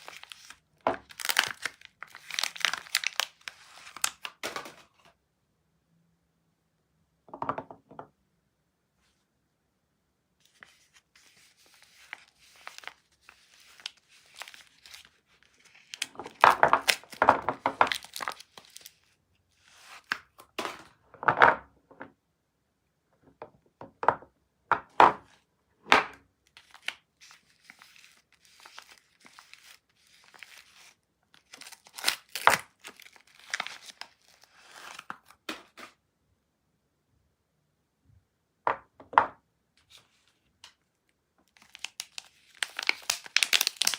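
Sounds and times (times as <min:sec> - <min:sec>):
packaging tearing and crinkling: 0:00.0 - 0:04.4, 0:11.7 - 0:19.0, 0:26.6 - 0:35.3, 0:41.5 - 0:43.9
packaging rustling: 0:00.0 - 0:04.8, 0:10.5 - 0:19.0, 0:26.6 - 0:35.3, 0:41.5 - 0:43.9.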